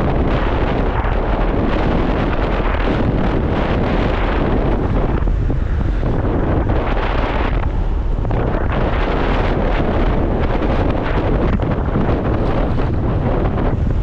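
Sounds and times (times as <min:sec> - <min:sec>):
road noise: 0:00.0 - 0:14.0
wind buffeting microphone: 0:00.0 - 0:14.0.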